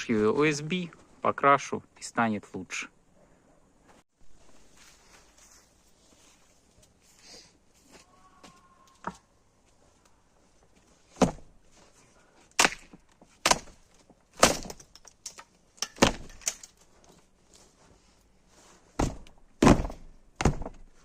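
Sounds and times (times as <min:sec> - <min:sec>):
wood cracking and splintering: 0:12.6 - 0:16.8.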